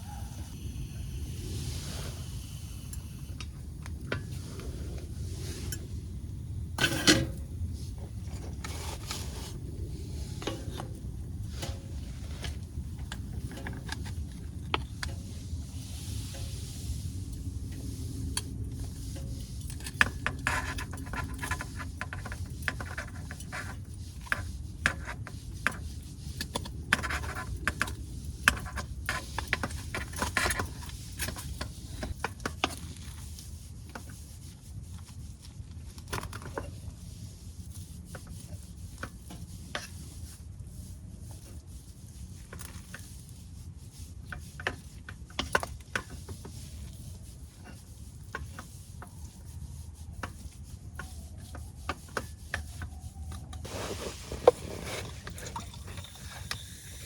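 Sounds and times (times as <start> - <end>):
steady low rumble: 0.0 - 20.1.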